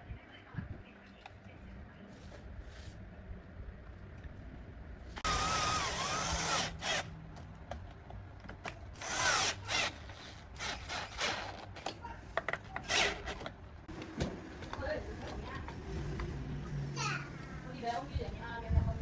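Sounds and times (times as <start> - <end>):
handheld power tool running: 5.2 - 7.1, 9.0 - 11.6, 12.8 - 13.5.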